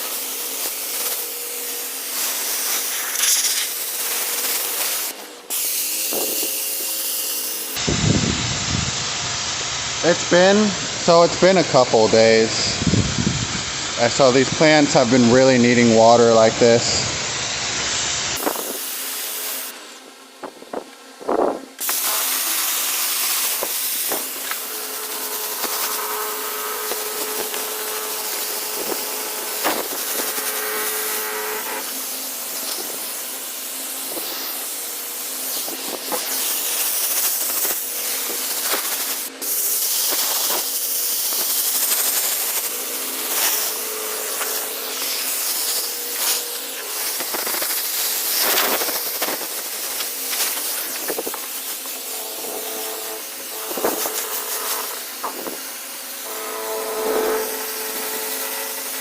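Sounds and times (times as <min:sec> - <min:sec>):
water spraying from hose nozzle: 0:00.0 - 0:07.8, 0:17.6 - 0:19.8, 0:21.3 - 0:56.4.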